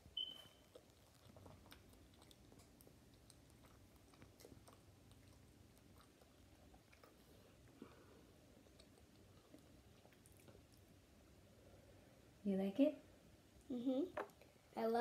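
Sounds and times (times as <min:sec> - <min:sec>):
chewing soft bread: 0:00.0 - 0:12.0
room hum: 0:00.0 - 0:15.0.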